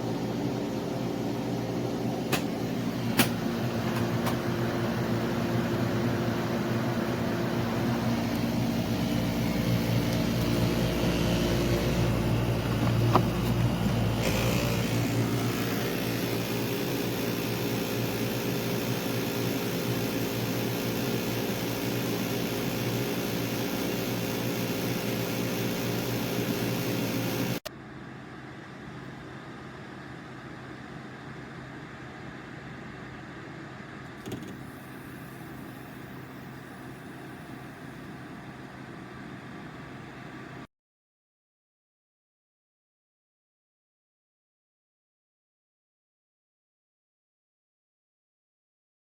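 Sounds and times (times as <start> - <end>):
air conditioner humming: 0.0 - 17.3.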